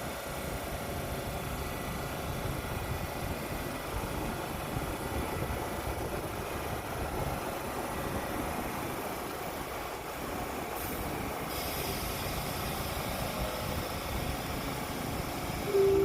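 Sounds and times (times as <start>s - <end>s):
subway train rumble: 0.0s - 16.0s
high hiss: 10.8s - 16.0s
train door chime: 15.7s - 16.0s.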